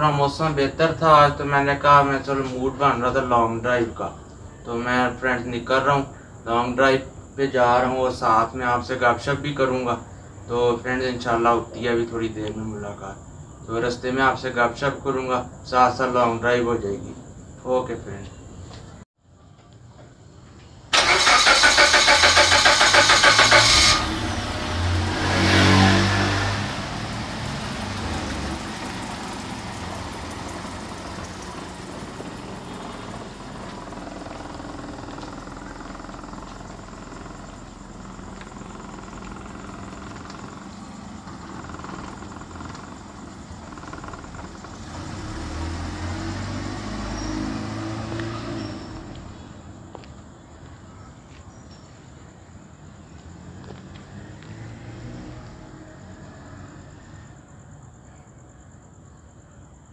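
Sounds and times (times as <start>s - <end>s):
car engine idling: 20.9s - 46.3s
car starter cranking: 20.9s - 46.4s
car pulling away: 20.9s - 50.1s, 53.2s - 57.4s.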